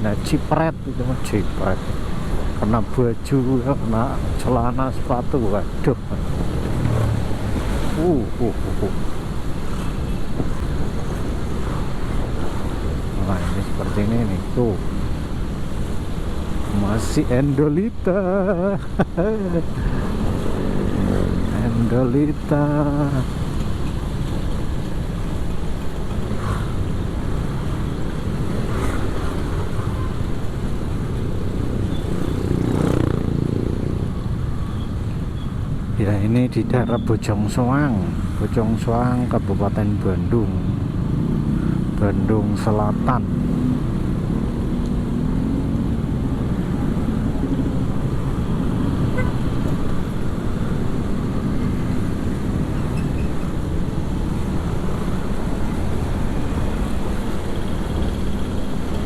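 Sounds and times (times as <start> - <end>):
wind and road noise: 0.0 - 59.0
motorcycle engine hum: 43.2 - 59.0.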